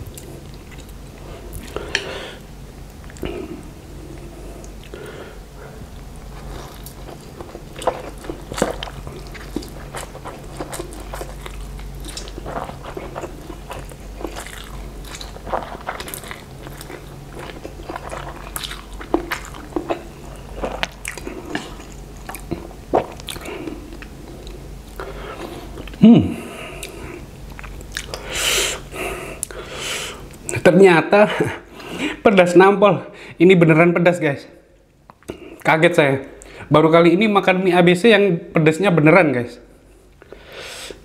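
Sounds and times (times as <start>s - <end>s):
person chewing noodles: 0.0s - 2.1s, 6.2s - 30.6s.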